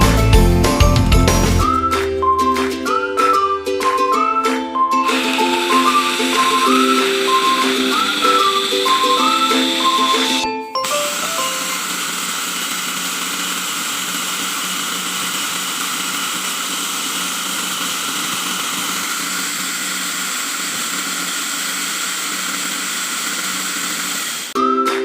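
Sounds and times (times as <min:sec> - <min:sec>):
small electric motor humming: 0:05.1 - 0:24.6.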